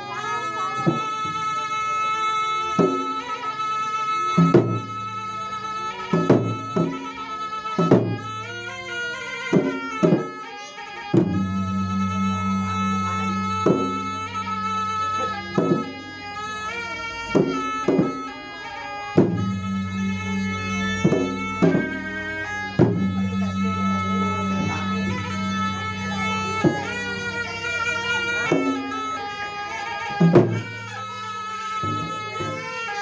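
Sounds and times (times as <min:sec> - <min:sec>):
reedy wind instrument melody: 0:00.0 - 0:33.0
sharp drum strokes: 0:04.3 - 0:10.4, 0:11.0 - 0:33.0
low drone: 0:19.2 - 0:29.2.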